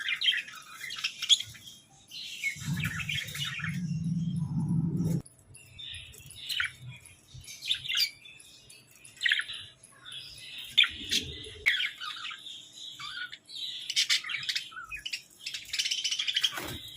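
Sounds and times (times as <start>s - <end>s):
budgerigars chirping and squawking: 0.0s - 4.2s.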